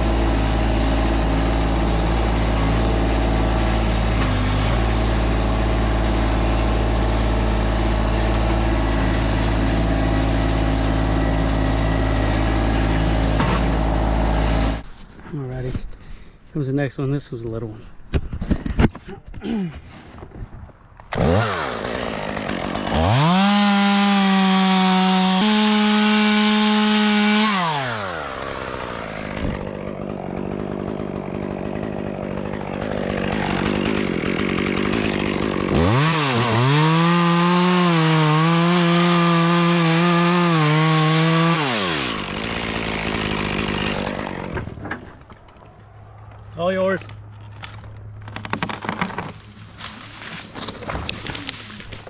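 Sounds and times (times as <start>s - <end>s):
chainsaw idling: 0.0s - 14.8s, 21.1s - 44.8s
chainsaw revving and cutting: 0.0s - 14.8s, 21.1s - 44.8s.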